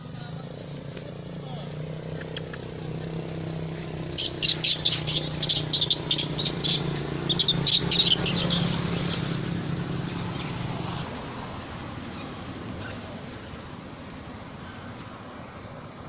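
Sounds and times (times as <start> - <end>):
monkeys squeaking and squealing: 2.0 - 3.2, 4.0 - 10.8, 12.1 - 13.3.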